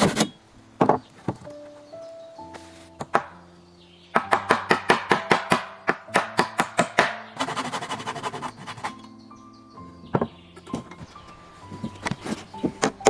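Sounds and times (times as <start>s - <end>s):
soft background music: 0.0s - 13.0s
hand tool chopping strikes: 4.2s - 7.5s.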